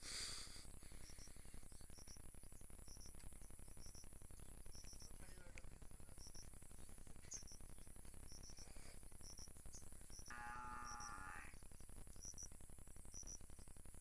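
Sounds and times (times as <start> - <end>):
insects chirping: 0.1 - 14.0
high-pitched insect drone: 7.3 - 13.6.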